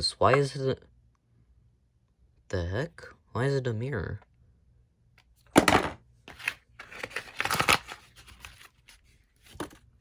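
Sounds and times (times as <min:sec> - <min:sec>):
packaging rustling and scraping: 0:06.3 - 0:09.9.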